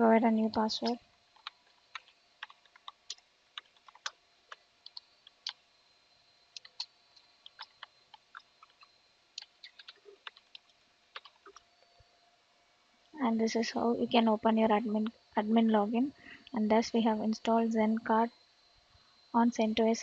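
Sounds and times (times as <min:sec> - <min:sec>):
typing on computer keyboard: 0:00.5 - 0:05.6, 0:06.6 - 0:06.9, 0:07.5 - 0:11.6.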